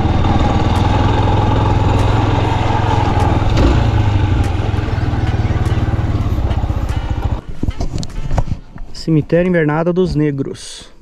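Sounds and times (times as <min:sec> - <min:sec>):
motorcycle engine running at low speed: 0:00.0 - 0:08.2.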